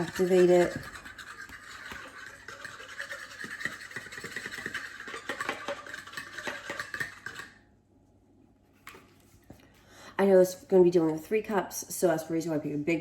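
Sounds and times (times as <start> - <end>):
whisk clattering in bowl: 0.0 - 7.6.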